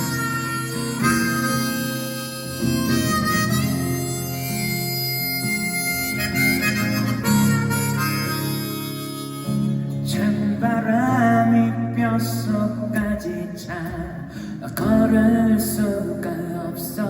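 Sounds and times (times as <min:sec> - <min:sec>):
harmonica playing slow melody: 0:00.0 - 0:10.2.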